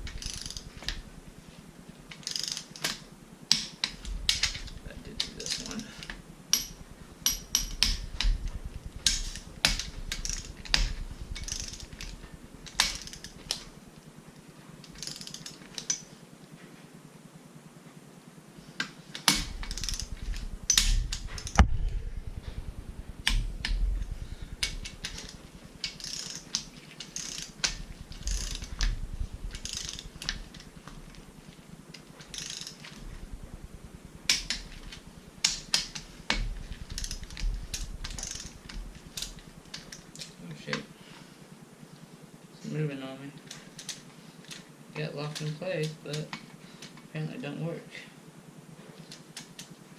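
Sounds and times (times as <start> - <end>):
torque wrench ratchet clicks: 0.0 - 1.0, 2.1 - 13.6, 14.9 - 16.0, 19.3 - 21.6, 23.1 - 31.0, 32.2 - 33.0, 34.2 - 40.0.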